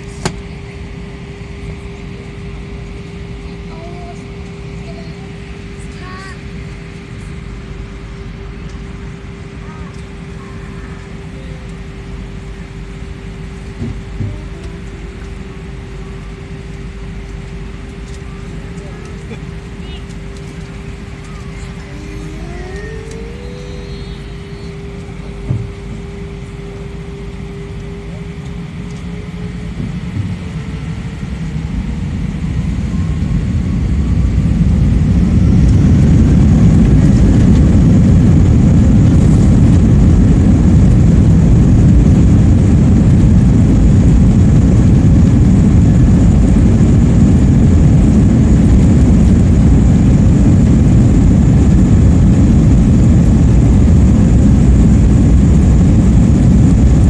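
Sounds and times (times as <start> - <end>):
engine whine: 0.0 - 57.0
jet engines spooling up: 16.5 - 57.0.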